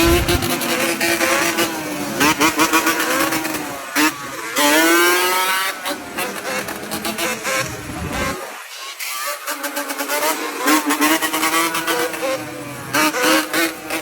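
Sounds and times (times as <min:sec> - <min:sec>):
motorcycle engine revving: 0:00.0 - 0:08.5
exhaust crackling pops: 0:07.2 - 0:08.5.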